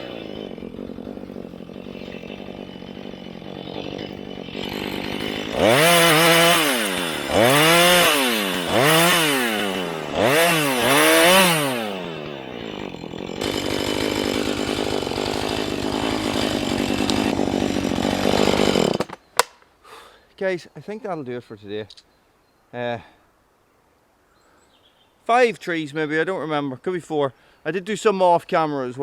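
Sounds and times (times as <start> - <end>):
chainsaw idling and revving: 0.0 - 19.2.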